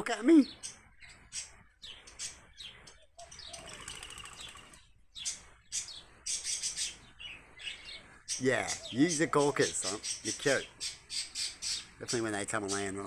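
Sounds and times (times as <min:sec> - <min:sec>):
birds chirping: 0:00.0 - 0:13.0
wing flapping: 0:03.2 - 0:04.9.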